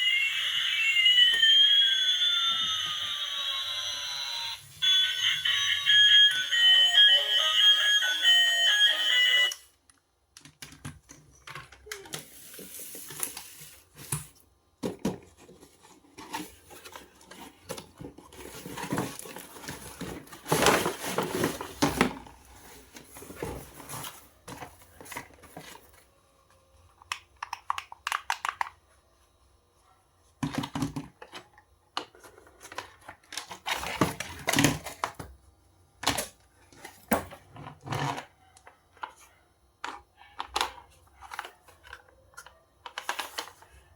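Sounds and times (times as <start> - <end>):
plastic and cardboard crinkling: 10.6 - 26.2, 30.4 - 35.4, 36.0 - 43.9.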